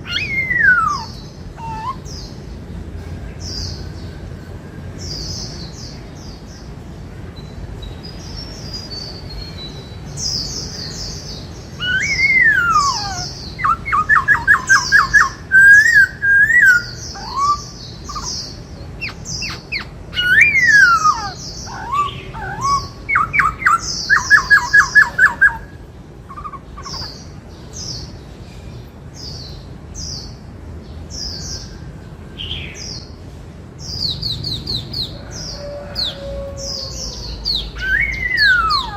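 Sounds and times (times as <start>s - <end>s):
bird singing whistled phrases: 0.0s - 2.1s, 11.8s - 25.7s, 37.5s - 38.9s
high-pitched chirping: 11.8s - 27.2s, 37.6s - 38.9s.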